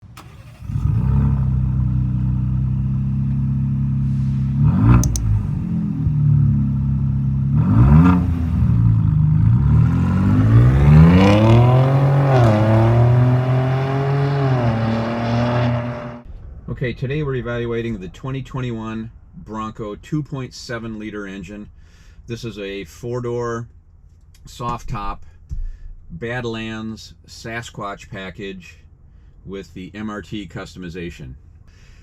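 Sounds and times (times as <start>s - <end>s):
car engine idling and revving: 0.0s - 16.3s.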